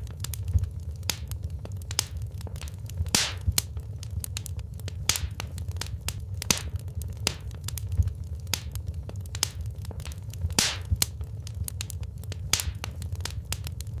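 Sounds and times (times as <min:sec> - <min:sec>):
low rumble of fire: 0:00.0 - 0:14.0
wood fire crackling: 0:00.0 - 0:14.0
loud hissing pop: 0:01.1 - 0:01.3, 0:01.9 - 0:03.7, 0:05.0 - 0:07.5, 0:09.4 - 0:11.1.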